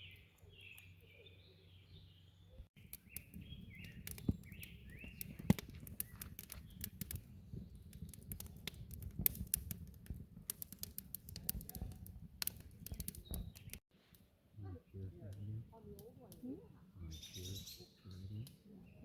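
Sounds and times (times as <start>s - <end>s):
small birds chirping: 0.0s - 9.6s, 10.6s - 19.0s.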